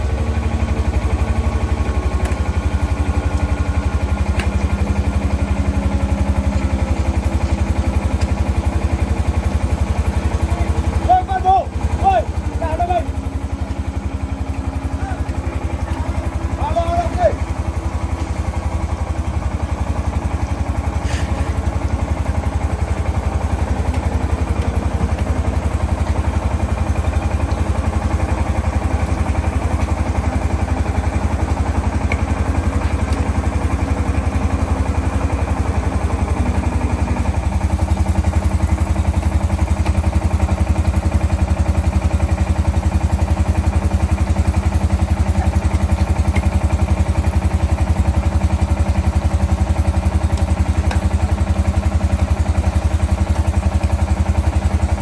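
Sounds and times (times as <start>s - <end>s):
engine running with fast pulse: 0.0s - 55.0s.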